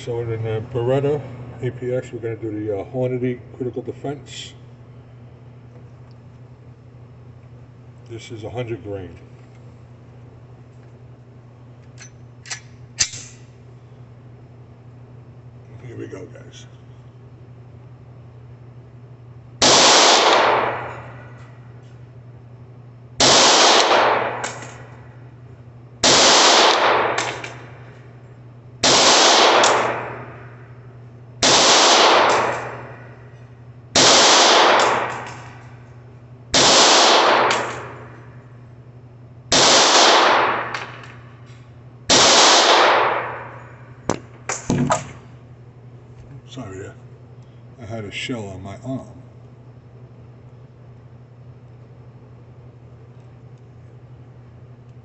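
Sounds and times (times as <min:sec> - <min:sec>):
steady low hum: 0:00.0 - 0:55.0
pistol shots with echo: 0:19.6 - 0:21.0, 0:23.2 - 0:24.8, 0:26.0 - 0:27.7, 0:28.8 - 0:30.3, 0:31.4 - 0:33.0, 0:34.0 - 0:35.6, 0:36.6 - 0:38.1, 0:39.5 - 0:41.2, 0:42.1 - 0:43.6.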